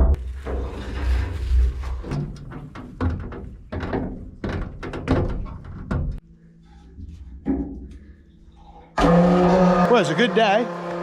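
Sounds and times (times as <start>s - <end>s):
hard knocks and thuds: 2.5s - 6.2s.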